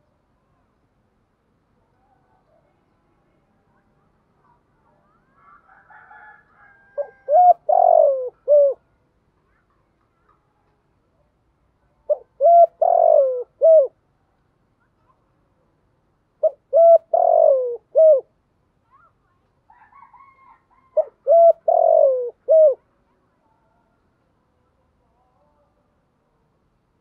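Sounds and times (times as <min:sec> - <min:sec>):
dove cooing: 0:06.9 - 0:08.8, 0:12.1 - 0:14.0, 0:16.4 - 0:18.3, 0:19.9 - 0:22.8.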